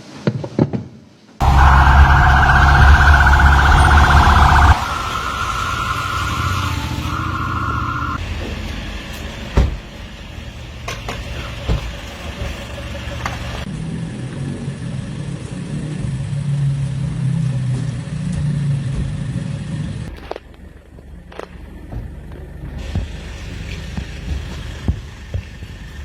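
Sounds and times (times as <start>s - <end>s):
steady alarm tone: 1.4s - 8.2s
vehicle engines running: 1.4s - 9.5s
street noise: 1.4s - 11.3s.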